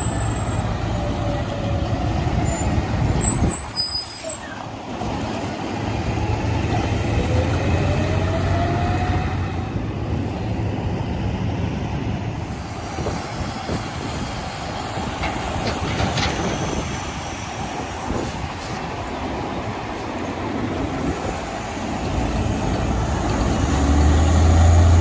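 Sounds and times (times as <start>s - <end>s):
diesel garbage truck engine: 0.0s - 25.0s
truck body rattling: 13.8s - 19.0s.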